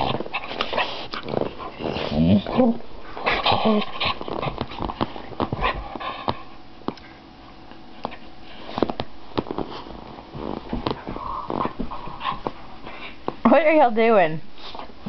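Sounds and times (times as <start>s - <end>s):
dog snorting and grunting: 0.0s - 6.5s.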